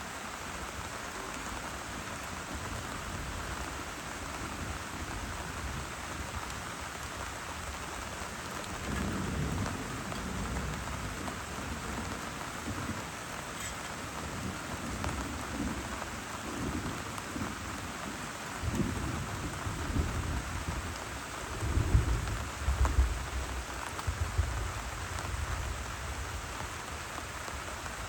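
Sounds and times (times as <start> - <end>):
heavy rain: 0.0 - 28.0
low thunder rumbling: 8.5 - 13.4.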